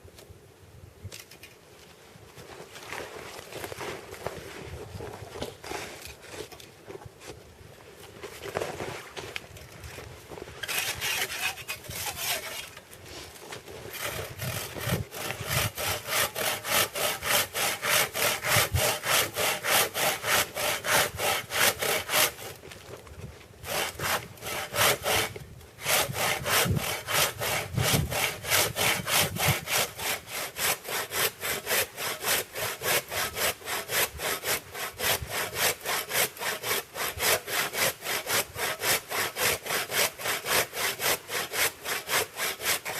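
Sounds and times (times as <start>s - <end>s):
hand saw cutting through log: 10.6s - 22.6s, 23.6s - 42.9s.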